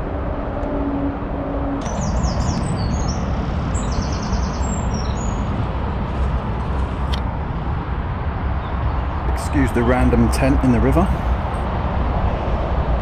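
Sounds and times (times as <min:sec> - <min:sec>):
steady low rushing background: 0:00.0 - 0:13.0
songbird singing trills: 0:01.8 - 0:05.5.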